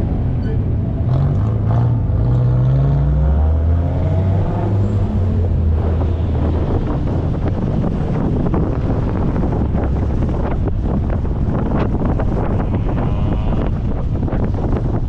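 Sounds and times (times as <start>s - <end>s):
wind buffeting microphone: 0.0s - 15.0s
car engine running: 5.4s - 12.4s.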